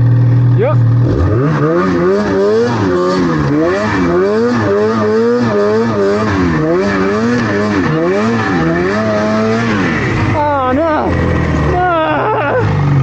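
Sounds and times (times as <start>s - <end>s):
snowmobile engine revving: 0.0s - 13.0s.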